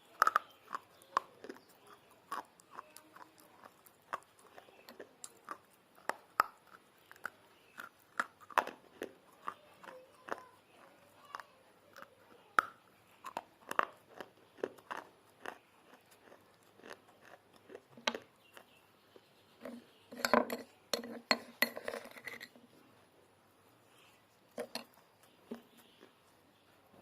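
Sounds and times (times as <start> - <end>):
clay pot pieces crunching: 0.0 - 18.8, 19.6 - 22.6, 24.5 - 26.2.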